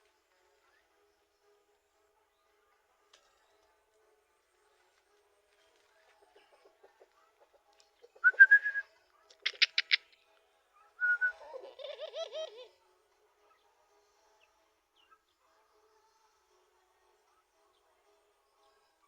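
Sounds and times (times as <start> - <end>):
high whistle-like tones: 8.2 - 8.9, 11.0 - 11.4
dove cooing: 11.0 - 12.8.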